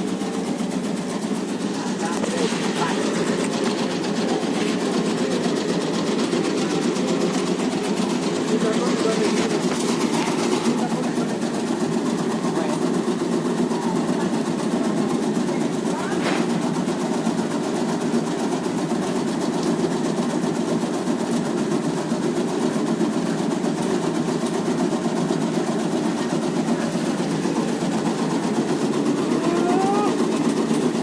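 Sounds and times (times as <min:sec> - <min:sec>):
cutting machine running: 0:00.0 - 0:31.0.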